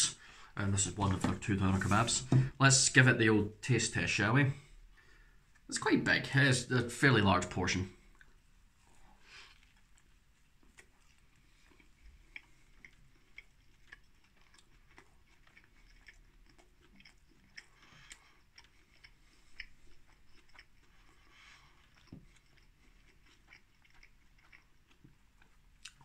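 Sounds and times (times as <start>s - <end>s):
man chewing food: 4.6s - 5.8s, 7.9s - 26.0s.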